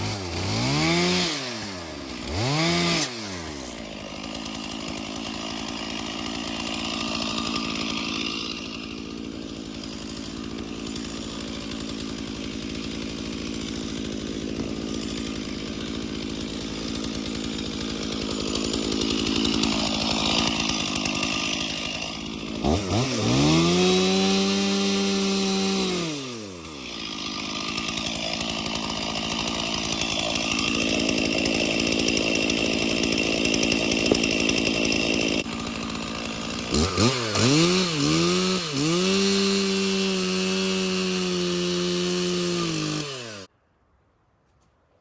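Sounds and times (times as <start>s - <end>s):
chainsaw revving: 0.0s - 43.5s.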